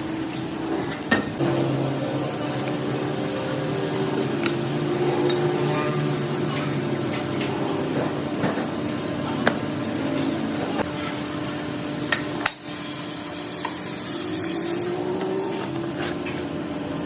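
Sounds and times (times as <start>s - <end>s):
steady machine hum: 0.0s - 17.0s
metal tools clinking: 12.1s - 12.9s
hiss: 12.8s - 16.1s.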